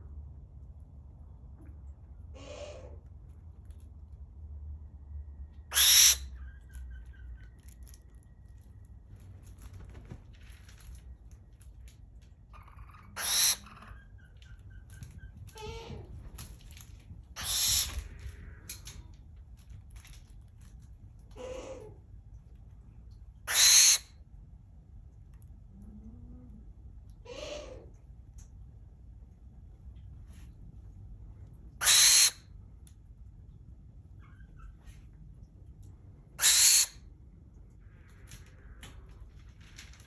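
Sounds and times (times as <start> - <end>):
low background rumble: 0.0 - 40.0
barn owl screeching: 2.3 - 3.0, 5.7 - 7.7, 12.5 - 16.1, 17.3 - 19.1, 21.4 - 22.0, 23.5 - 24.1, 27.2 - 27.9, 31.8 - 32.5, 36.4 - 37.1.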